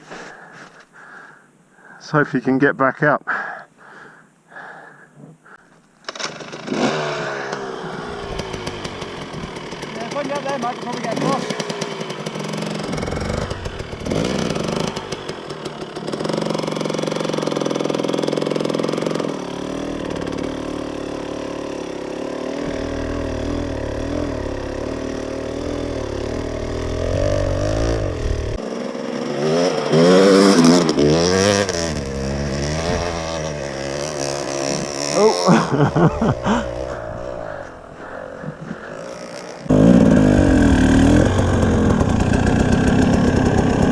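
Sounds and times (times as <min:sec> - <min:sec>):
dirt bike engine revving: 0:06.0 - 0:43.9.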